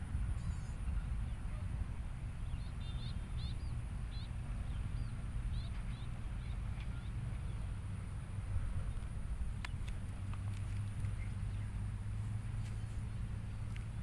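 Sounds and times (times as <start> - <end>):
steady low rumble: 0.0 - 14.0
small bird chirping: 2.4 - 7.6.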